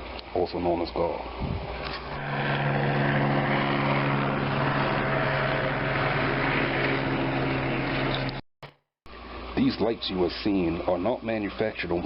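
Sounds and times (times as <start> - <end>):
airplane engines droning: 1.7 - 8.4.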